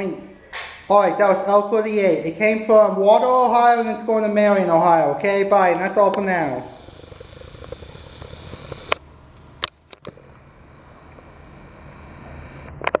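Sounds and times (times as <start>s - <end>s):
sharp clicks: 5.7s - 13.0s.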